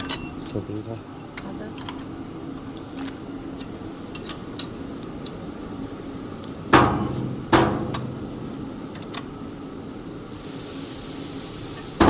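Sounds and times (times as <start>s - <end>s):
sharp metal clanks: 0.0s - 0.4s, 6.8s - 8.3s.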